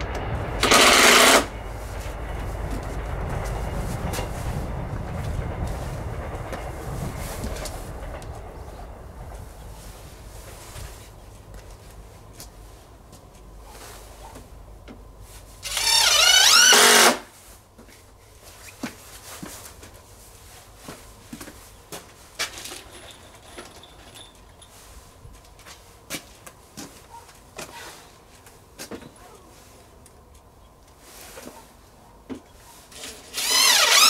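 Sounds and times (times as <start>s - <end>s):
low rumble: 0.0s - 12.3s
electric tool motor whine: 0.6s - 1.5s, 15.6s - 17.3s, 33.3s - 34.0s.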